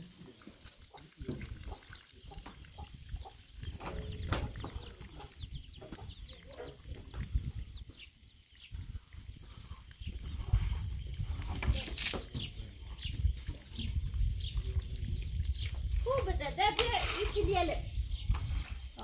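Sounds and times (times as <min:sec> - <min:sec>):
birds chirping: 0:00.8 - 0:19.0.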